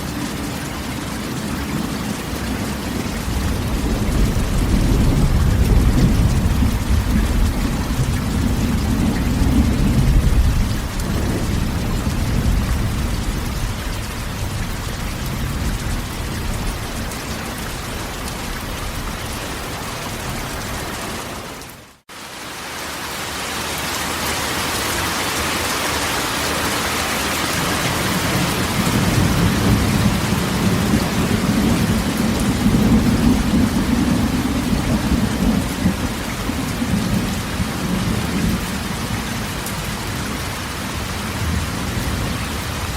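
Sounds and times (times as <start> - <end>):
heavy rain on a metal roof: 0.0 - 42.9
rolling thunder: 2.9 - 21.4, 27.8 - 40.4.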